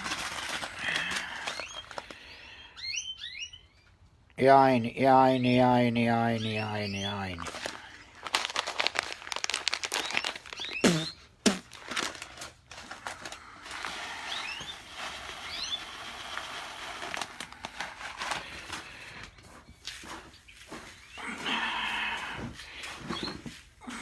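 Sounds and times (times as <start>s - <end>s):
seeds clicking and rustling: 0.0s - 2.5s, 7.4s - 21.1s
faint bird chirps: 1.5s - 4.0s, 4.7s - 7.5s, 10.0s - 11.3s
seeds pouring hiss: 13.4s - 18.8s.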